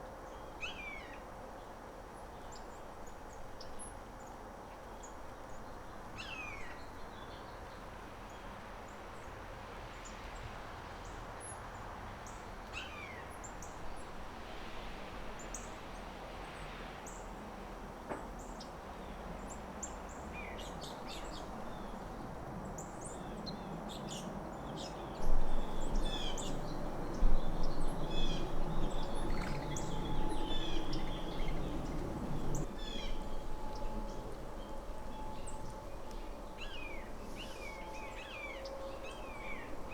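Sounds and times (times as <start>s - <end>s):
birds chirping and calling: 25.2s - 33.2s
loud low rumble: 25.2s - 37.0s.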